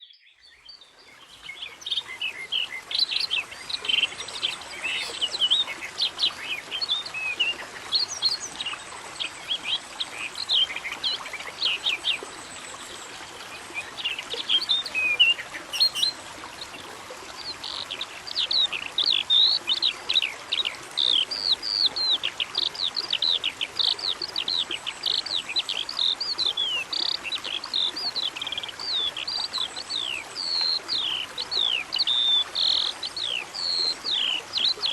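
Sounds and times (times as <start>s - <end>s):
small birds chirping: 0.0s - 8.8s, 13.6s - 20.0s.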